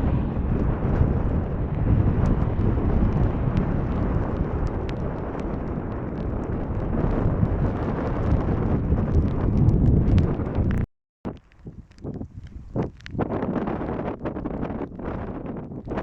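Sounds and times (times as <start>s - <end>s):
jet engines rumbling: 0.0s - 9.6s
wind buffeting microphone: 0.0s - 16.0s.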